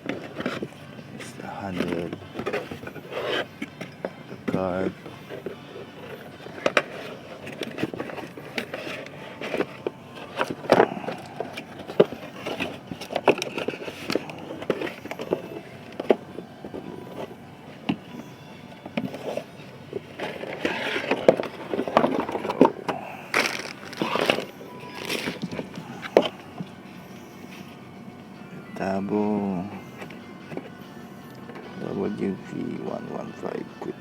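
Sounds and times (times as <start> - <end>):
packaging handling clicks and knocks: 0.0 - 26.8.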